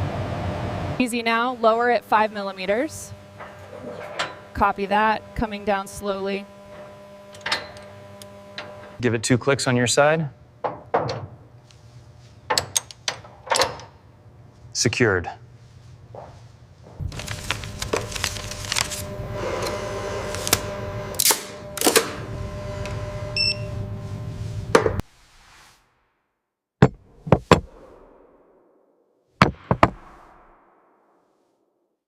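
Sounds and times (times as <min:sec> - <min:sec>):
steady mechanical hum: 0:00.0 - 0:25.0
clanks and knocks: 0:03.4 - 0:04.5, 0:10.6 - 0:11.4, 0:29.4 - 0:30.0.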